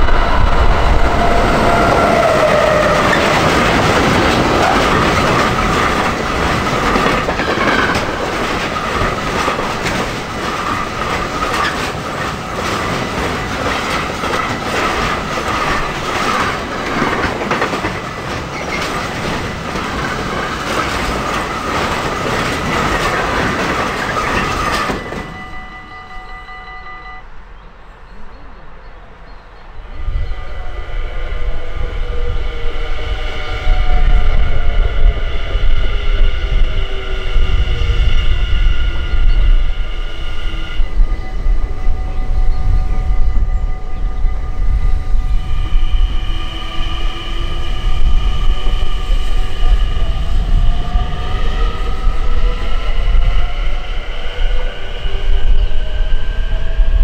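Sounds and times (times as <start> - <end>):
falling tone of passing locomotive: 0.0 - 57.0
train wheels clattering on rails: 1.0 - 25.5.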